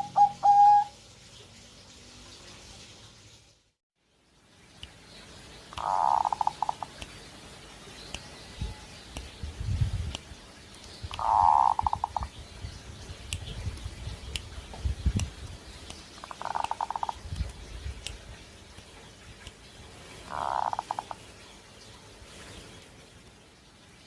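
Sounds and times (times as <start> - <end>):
dove cooing: 0.0 - 0.9.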